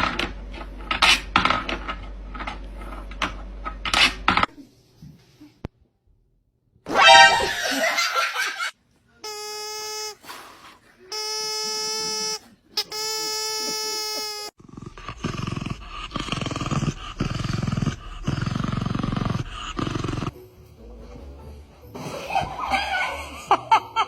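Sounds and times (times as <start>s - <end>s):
high pitched tone: 6.9s - 7.8s
animal growling: 14.6s - 20.4s.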